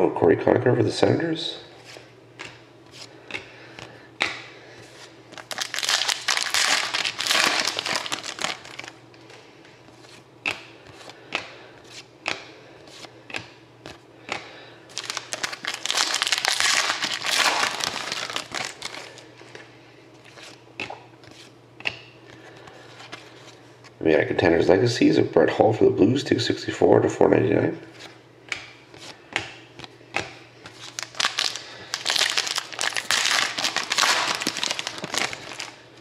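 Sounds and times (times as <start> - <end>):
wrappers crinkling: 5.3 - 9.0, 14.9 - 19.3, 30.8 - 36.0.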